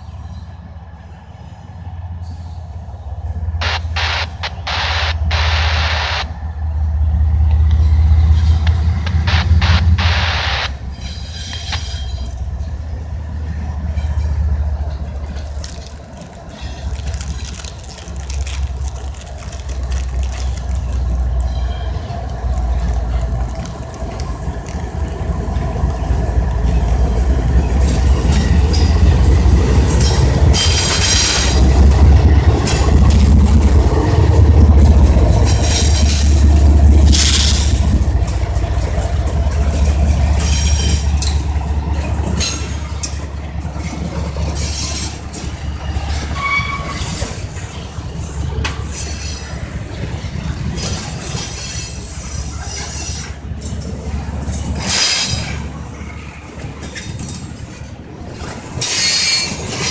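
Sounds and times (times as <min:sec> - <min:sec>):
freight train rumbling past: 0:00.0 - 0:59.9
high-pitched wheel squeals: 0:46.2 - 0:47.4, 0:58.8 - 0:59.9.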